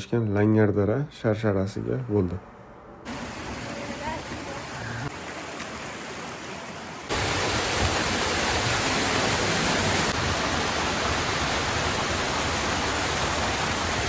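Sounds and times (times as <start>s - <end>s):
waterfall rushing: 3.1s - 14.0s.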